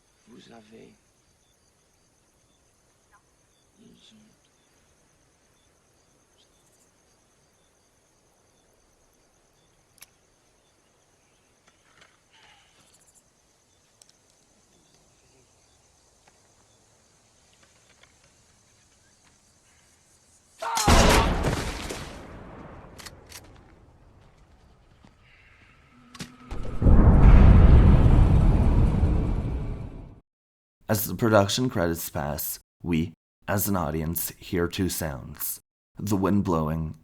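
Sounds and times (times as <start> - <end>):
faint insect trill: 0.0 - 20.9
loud shotgun blast: 20.8 - 23.3.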